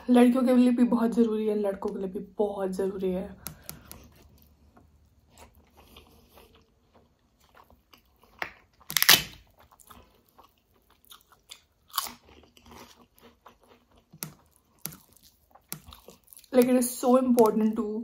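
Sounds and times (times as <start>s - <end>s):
chewing with wet mouth sounds: 3.4s - 17.9s
fingers mixing food on steel plate: 13.9s - 17.8s.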